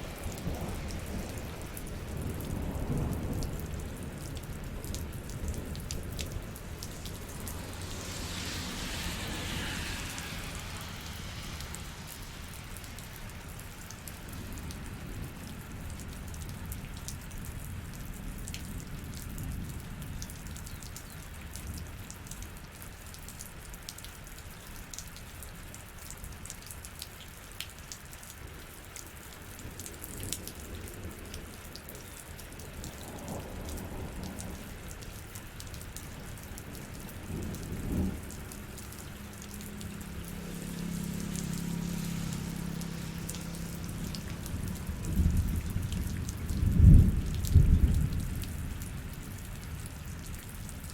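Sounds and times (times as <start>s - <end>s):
thunder rumbling: 0.0s - 16.0s, 36.2s - 49.4s
steady rain falling: 0.0s - 50.9s
raindrops ticking: 0.2s - 8.4s, 10.5s - 28.3s, 28.9s - 50.9s.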